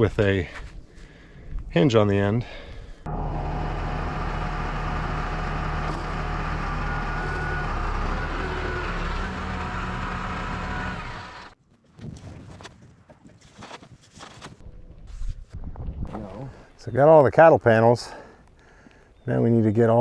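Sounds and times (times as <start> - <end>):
excavator diesel engine running: 3.1 - 11.6.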